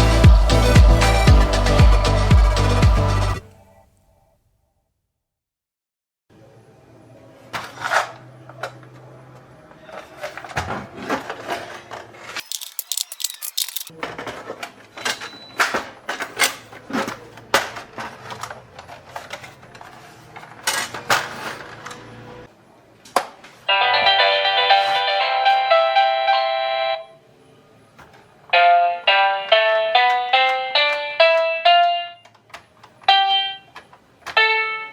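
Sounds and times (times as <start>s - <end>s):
small hard parts clicking and clattering: 12.4s - 13.9s.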